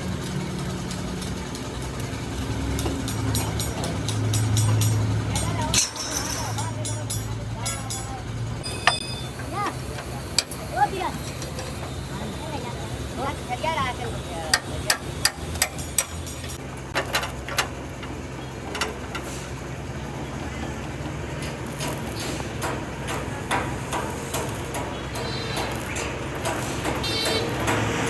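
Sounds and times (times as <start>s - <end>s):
faint voices: 1.2s - 15.3s.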